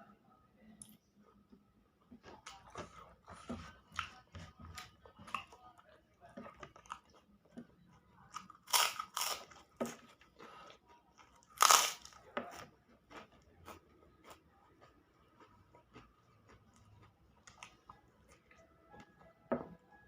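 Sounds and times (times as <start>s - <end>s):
quiet chewing: 0.6s - 19.4s
crunchy bites: 8.4s - 10.0s, 11.3s - 14.4s.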